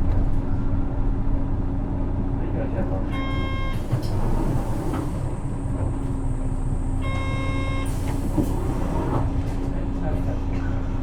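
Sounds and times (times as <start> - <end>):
bus diesel engine running: 0.0 - 11.0
short electronic tone: 7.0 - 7.9.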